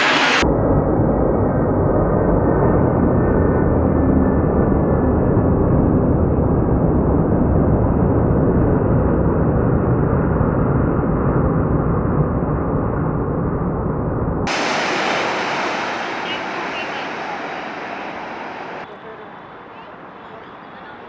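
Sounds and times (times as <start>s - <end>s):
jet engines rumbling: 0.0s - 0.4s, 14.5s - 21.0s.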